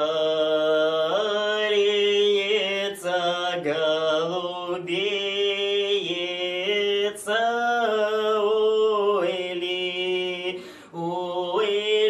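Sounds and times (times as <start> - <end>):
man singing a cappella: 0.0 - 12.0
man breathing in: 10.5 - 11.0.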